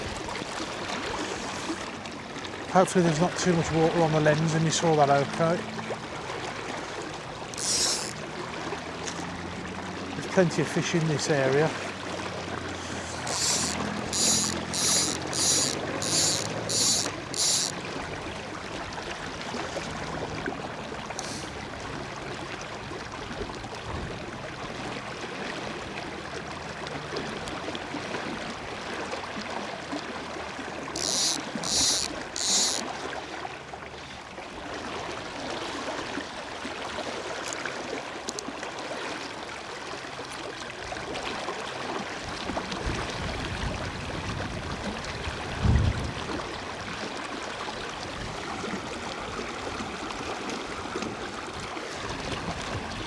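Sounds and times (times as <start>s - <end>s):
river water flowing: 0.0s - 43.4s, 46.2s - 53.0s
high-pitched rasps: 7.6s - 8.2s, 12.8s - 17.7s, 31.0s - 32.8s
wind noise on microphone: 42.8s - 46.5s.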